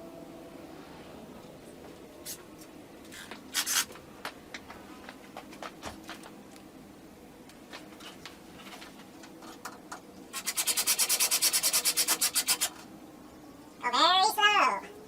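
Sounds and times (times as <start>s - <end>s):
fast rasping strokes: 10.3s - 12.8s.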